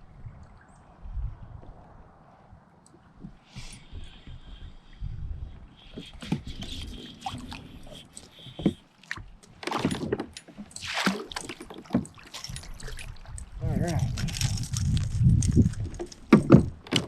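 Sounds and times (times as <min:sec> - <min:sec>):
water splashing: 0:05.8 - 0:17.0.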